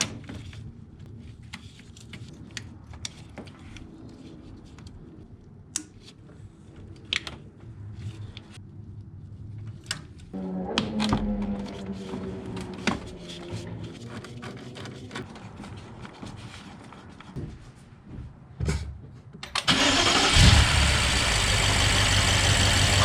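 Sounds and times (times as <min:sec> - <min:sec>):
car engine cranking and running: 0:19.6 - 0:23.0.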